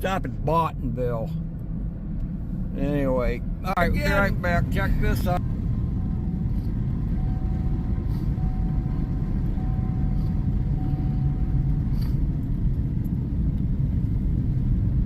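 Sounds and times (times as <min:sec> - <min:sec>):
low vehicle rumble: 0:00.0 - 0:15.0
faint thin tone: 0:09.6 - 0:12.2.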